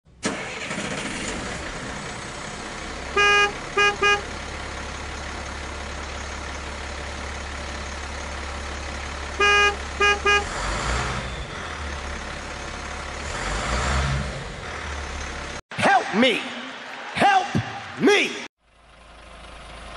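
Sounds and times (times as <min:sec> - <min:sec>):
low engine drone: 0:01.3 - 0:13.3
vehicle horn honking: 0:03.1 - 0:04.4, 0:09.4 - 0:10.7.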